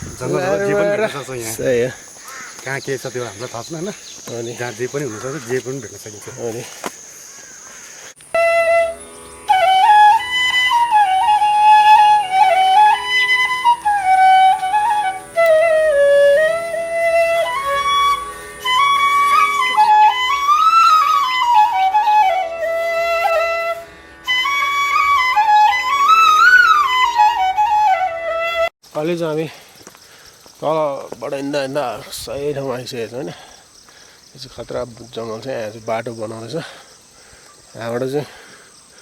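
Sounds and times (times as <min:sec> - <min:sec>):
flute playing slow melody: 0:08.3 - 0:28.7.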